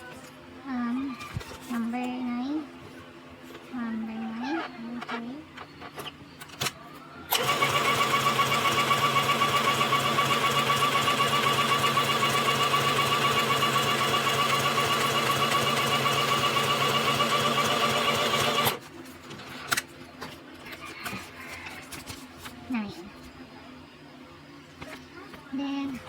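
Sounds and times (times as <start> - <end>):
sewing machine stitching: 7.3 - 18.8.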